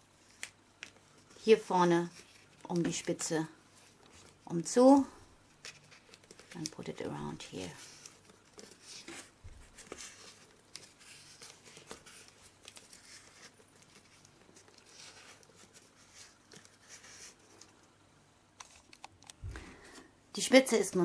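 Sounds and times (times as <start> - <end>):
tape rustling and clicking: 0.2 - 18.0, 18.6 - 19.6.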